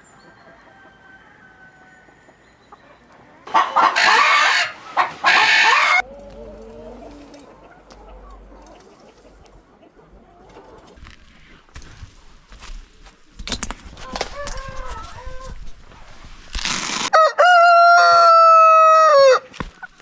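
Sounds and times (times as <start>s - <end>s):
chickens clucking: 2.1s - 11.6s
chicken calling loudly: 3.5s - 10.2s, 17.1s - 19.5s.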